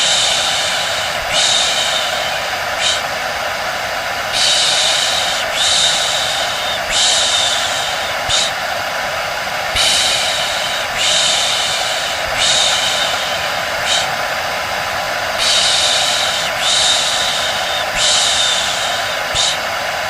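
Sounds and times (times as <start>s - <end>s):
hair dryer whirring: 0.0s - 20.0s
person shushing: 9.8s - 14.2s, 15.4s - 19.7s.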